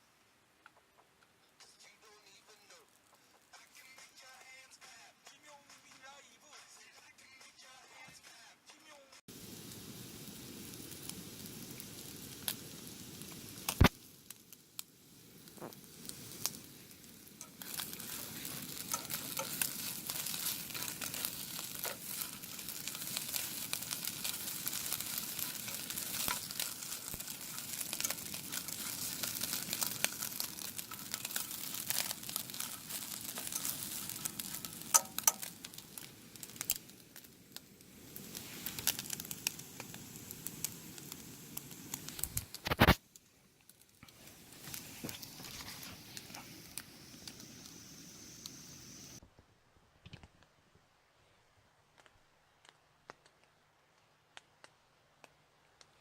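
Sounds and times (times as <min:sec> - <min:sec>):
food sizzling in a pan: 0:09.3 - 0:49.2.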